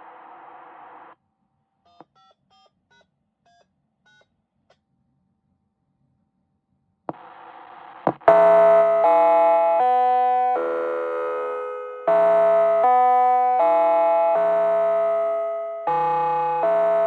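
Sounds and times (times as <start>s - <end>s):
radio click: 7.1s - 7.4s
loud steady warning tone: 8.3s - 17.0s.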